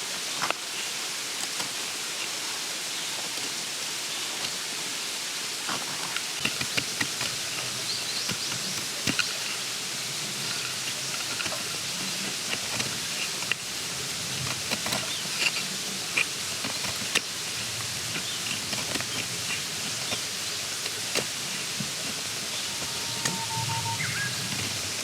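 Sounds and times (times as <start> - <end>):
steady hiss: 0.0 - 25.0
small clicks and knocks: 5.6 - 9.7, 10.4 - 23.7
faint bird chirps: 22.5 - 25.0.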